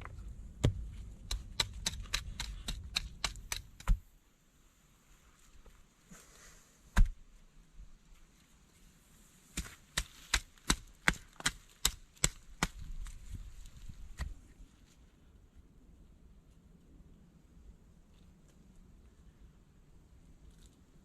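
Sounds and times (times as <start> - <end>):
axe chopping wood: 0.6 - 4.1, 7.0 - 7.2, 9.5 - 13.1.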